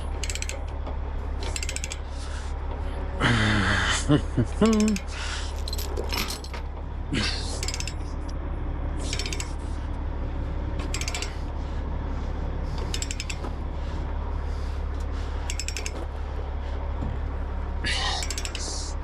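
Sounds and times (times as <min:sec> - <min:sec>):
ratchet clicking: 0:00.2 - 0:00.7, 0:01.5 - 0:02.0, 0:04.6 - 0:06.5, 0:07.6 - 0:08.0, 0:09.1 - 0:09.6, 0:10.9 - 0:11.4, 0:12.9 - 0:13.4, 0:15.5 - 0:16.0, 0:18.2 - 0:18.8.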